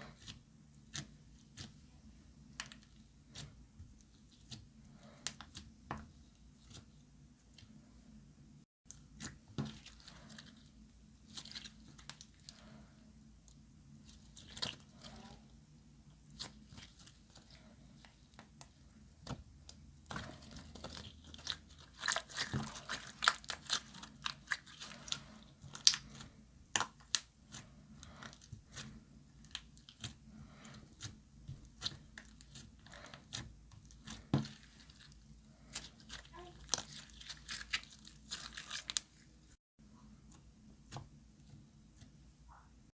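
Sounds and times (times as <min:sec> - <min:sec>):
slime squished by hand: 0:19.2 - 0:30.2.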